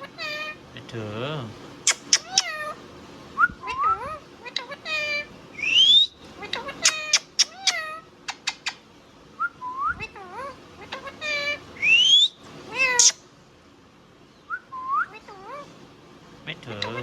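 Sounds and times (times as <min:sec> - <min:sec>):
parakeet squawks and whistles: 0:01.8 - 0:02.8, 0:03.4 - 0:08.8, 0:09.4 - 0:13.2, 0:14.5 - 0:15.6.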